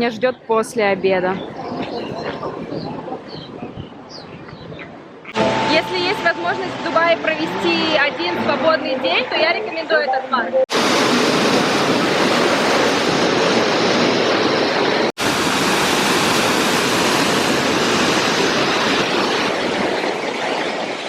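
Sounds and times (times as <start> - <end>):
rushing churning water: 10.7 - 21.0.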